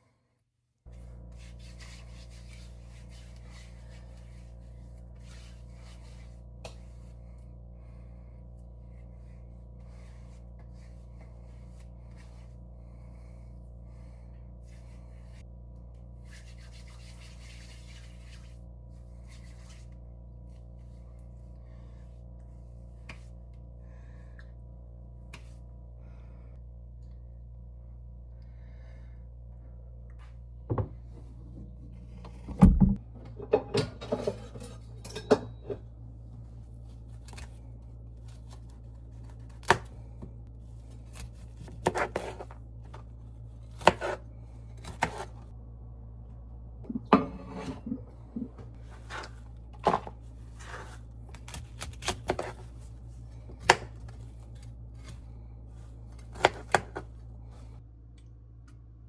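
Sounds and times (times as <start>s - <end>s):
steady low hum: 0.8s - 59.0s
dishes and utensils clinking: 33.4s - 35.8s.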